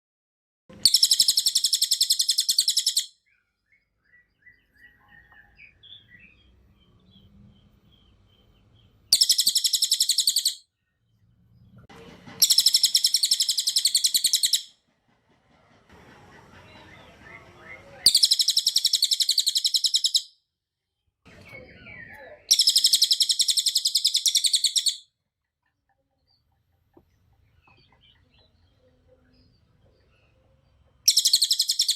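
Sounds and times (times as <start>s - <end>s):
bird high-pitched trills: 0.8s - 3.1s, 9.1s - 10.6s, 12.4s - 14.7s, 16.7s - 20.3s, 21.3s - 25.0s, 31.0s - 31.9s
faint bird chirps: 0.8s - 11.8s, 12.4s - 14.6s, 16.5s - 20.3s, 21.3s - 25.1s, 26.0s - 31.9s.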